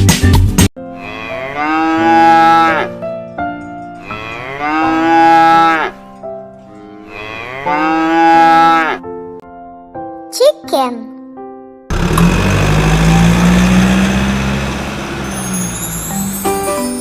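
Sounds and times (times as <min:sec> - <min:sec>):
cow mooing: 0:00.9 - 0:03.0, 0:04.0 - 0:06.0, 0:06.9 - 0:09.0.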